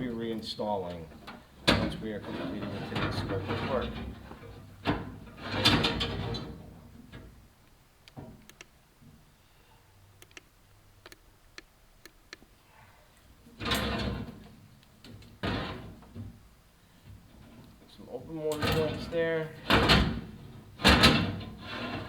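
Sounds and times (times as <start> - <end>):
light clicks and taps: 7.6 - 8.8, 10.2 - 12.5.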